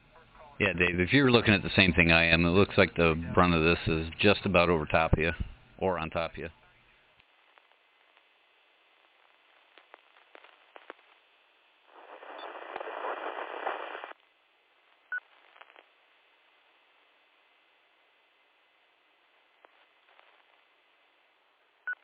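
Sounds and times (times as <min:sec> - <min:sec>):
radio static hiss: 0:00.0 - 0:22.0
radio clicks: 0:09.0 - 0:11.2, 0:12.0 - 0:14.1.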